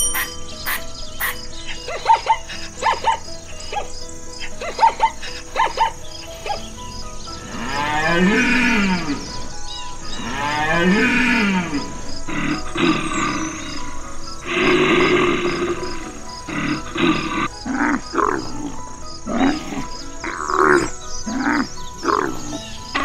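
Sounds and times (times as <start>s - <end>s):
animal calls: 0.0s - 23.0s
background music with ticking beat: 0.0s - 23.0s
growl-like animal calls: 7.4s - 9.5s, 10.1s - 23.0s.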